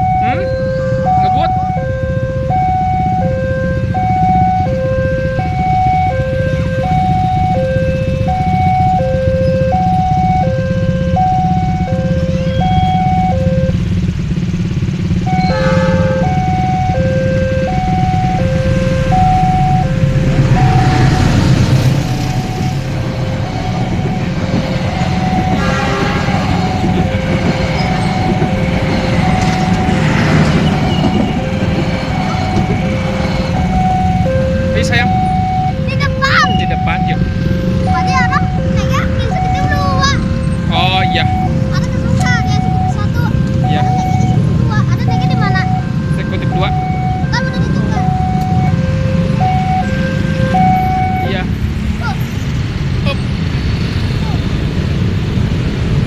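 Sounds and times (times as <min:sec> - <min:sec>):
level-crossing alarm two-tone signal: 0:00.0 - 0:13.8, 0:15.2 - 0:51.6
low rumble: 0:11.1 - 0:35.8.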